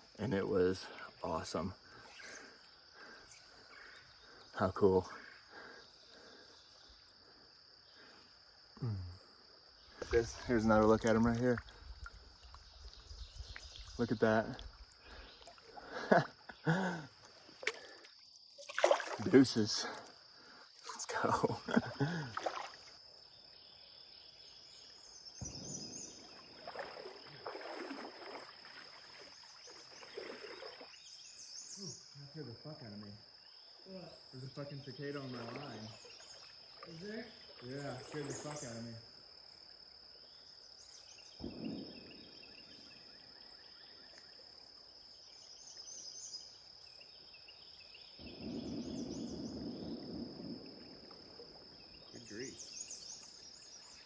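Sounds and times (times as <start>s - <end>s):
birds chirping: 0.0s - 11.6s, 12.4s - 18.1s, 51.8s - 54.0s
cicadas droning: 0.0s - 54.0s.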